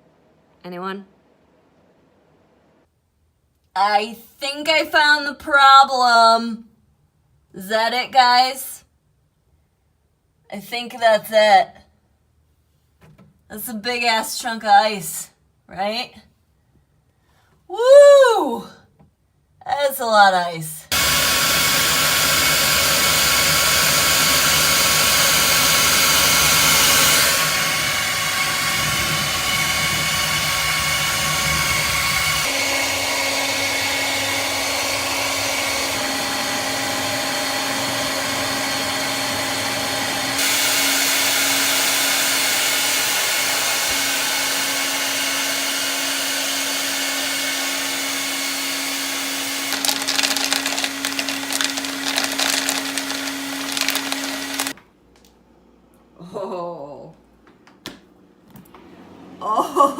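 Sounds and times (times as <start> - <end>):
hair dryer running: 20.9 - 54.8.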